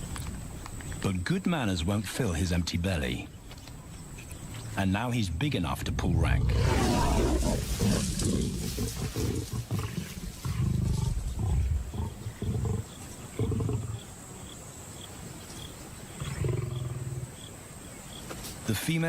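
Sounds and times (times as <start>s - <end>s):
insect chirping: 0.0s - 19.0s
lions growling and snarling: 5.9s - 14.1s, 16.1s - 17.4s.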